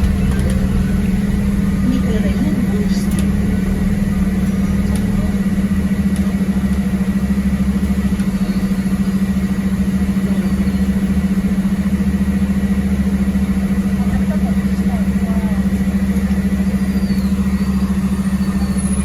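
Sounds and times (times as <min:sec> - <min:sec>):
bus engine droning: 0:00.0 - 0:19.0.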